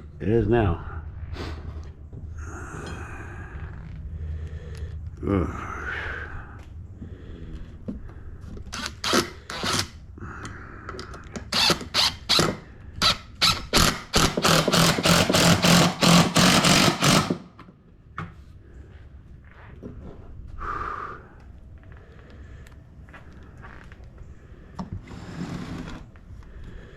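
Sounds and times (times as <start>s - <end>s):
power drill on wood: 8.7s - 9.9s, 11.4s - 17.6s.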